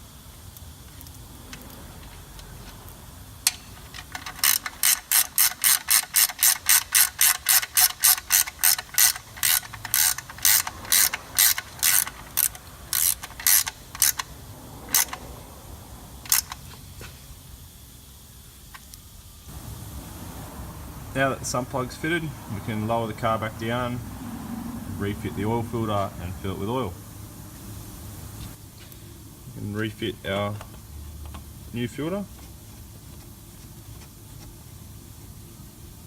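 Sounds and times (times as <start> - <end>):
ratchet wrench clicking: 0.5 - 15.4, 16.2 - 16.8.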